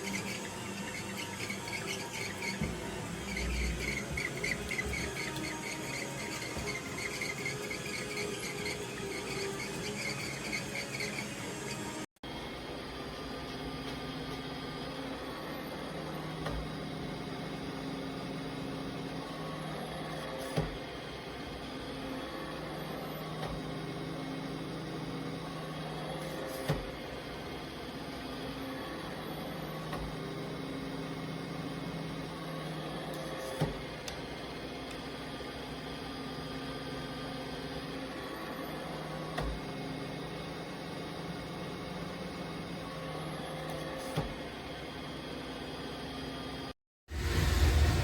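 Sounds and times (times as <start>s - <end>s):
robot vacuum whirring: 0.0s - 48.0s.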